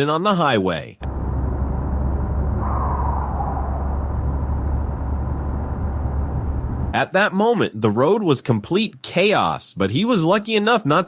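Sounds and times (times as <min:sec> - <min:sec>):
faint rushing sound: 0:02.1 - 0:07.0.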